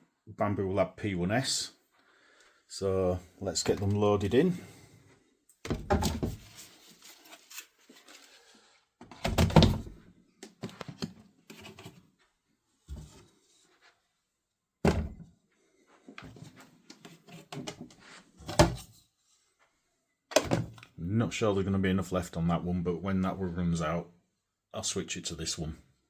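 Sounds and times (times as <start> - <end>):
plastic parts knocking and thudding: 5.6 - 6.6, 9.0 - 11.9, 14.8 - 15.3, 16.2 - 18.9, 20.3 - 20.9.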